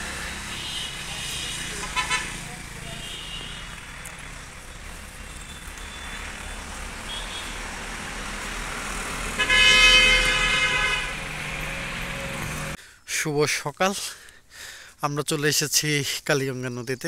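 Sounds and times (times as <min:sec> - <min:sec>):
passing road traffic: 0:00.0 - 0:12.8
vehicle horn blast: 0:00.4 - 0:03.8, 0:05.4 - 0:07.7, 0:09.3 - 0:11.5.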